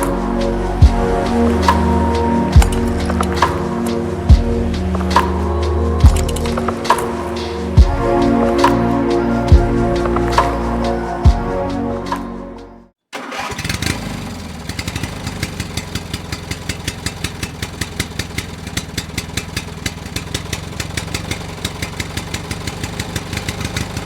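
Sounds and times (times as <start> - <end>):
music: 0.0 - 12.9
small tractor engine running: 13.2 - 24.0.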